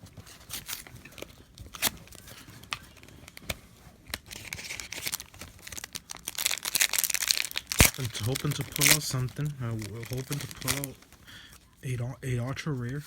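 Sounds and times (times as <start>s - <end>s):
foil wrapper tearing and crinkling: 0.4s - 11.2s.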